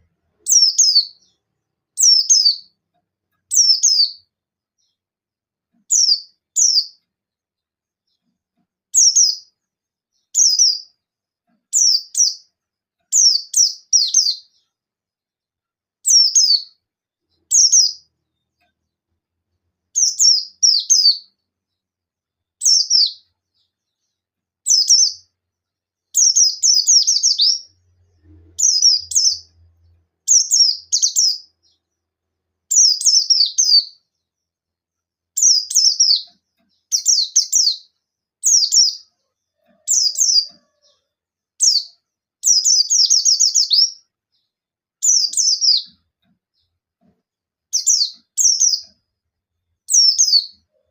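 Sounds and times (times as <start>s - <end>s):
bird singing high falling chirps: 0.4s - 1.4s, 2.0s - 2.8s, 3.5s - 5.0s, 5.9s - 7.0s, 10.2s - 11.0s, 11.7s - 12.5s, 13.1s - 14.7s, 16.0s - 18.1s, 20.0s - 21.4s, 22.6s - 23.3s, 24.6s - 25.3s, 26.1s - 27.8s, 28.6s - 31.8s, 32.7s - 34.2s, 35.4s - 39.2s, 41.6s - 44.0s, 45.0s - 46.0s, 47.7s - 49.0s, 49.9s - 50.9s.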